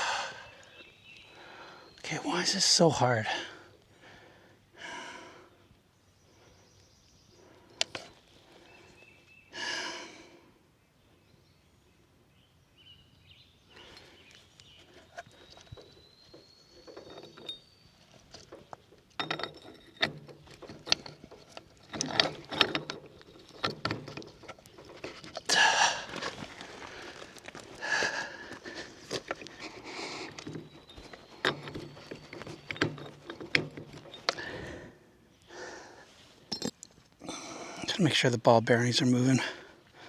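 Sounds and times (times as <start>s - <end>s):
man breathing loudly: 0.0s - 0.6s, 9.5s - 10.6s, 25.5s - 30.4s, 34.3s - 36.2s
metal clicks and knocks: 15.1s - 25.5s, 29.0s - 34.7s, 36.5s - 37.0s.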